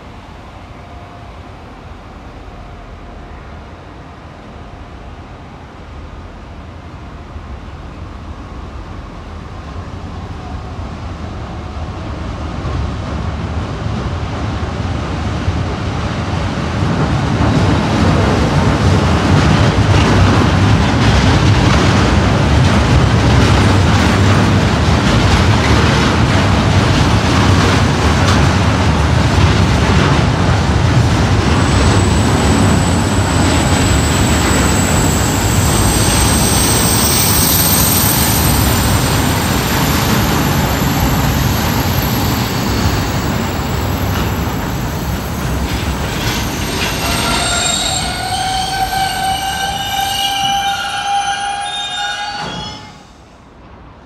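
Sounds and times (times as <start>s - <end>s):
train passing: 0.0s - 54.0s
train wheels beating: 16.9s - 52.9s
thin high whine: 31.6s - 43.1s.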